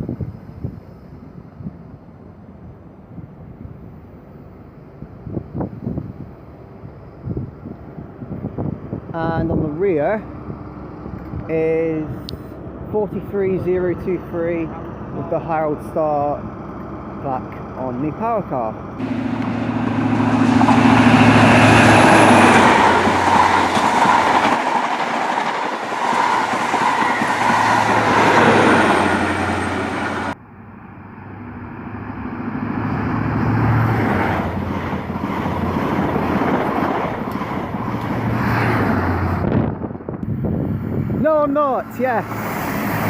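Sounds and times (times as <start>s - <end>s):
diesel train approaching: 0.0s - 43.0s
diesel train engine and wheels: 0.0s - 43.0s
faint high whine: 19.0s - 22.4s.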